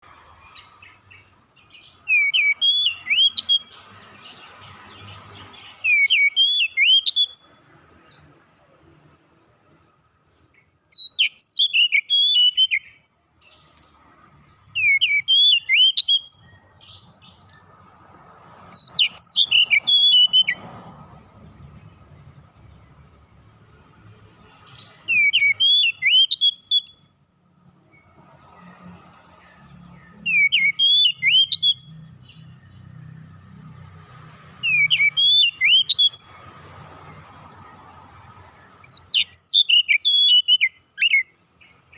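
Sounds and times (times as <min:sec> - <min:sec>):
bird singing whistled phrases: 0:01.8 - 0:03.8, 0:05.7 - 0:07.5, 0:10.9 - 0:13.0, 0:14.8 - 0:17.0, 0:18.8 - 0:20.6, 0:24.7 - 0:27.1, 0:30.1 - 0:32.1, 0:34.6 - 0:36.4, 0:38.8 - 0:41.3.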